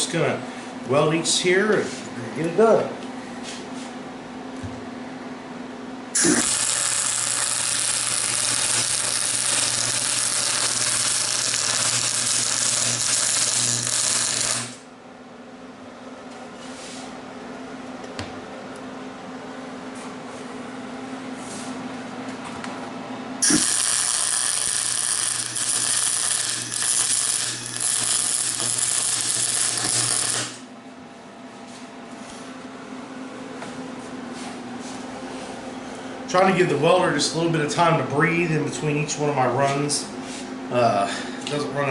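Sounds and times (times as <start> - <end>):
steady low hum: 0.0 - 41.9
welding arc: 6.2 - 14.8, 23.4 - 30.6.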